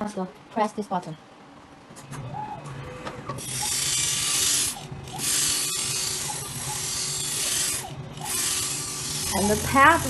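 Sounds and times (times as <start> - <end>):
motor hum: 2.1 - 10.0.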